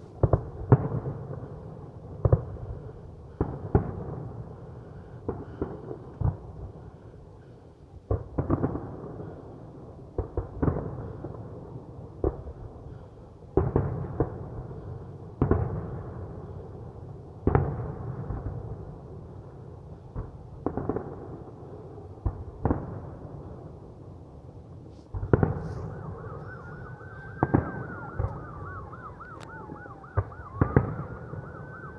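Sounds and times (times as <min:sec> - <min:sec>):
fireworks bangs with rumbling echo: 0:00.1 - 0:06.9, 0:08.0 - 0:12.9, 0:13.5 - 0:24.3, 0:25.0 - 0:31.9.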